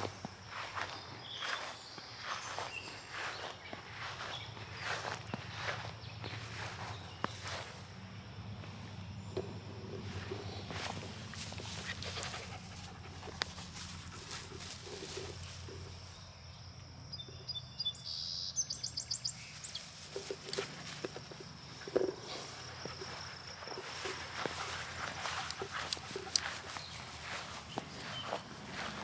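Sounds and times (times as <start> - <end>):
dog panting: 10.9 - 15.5, 22.5 - 29.0.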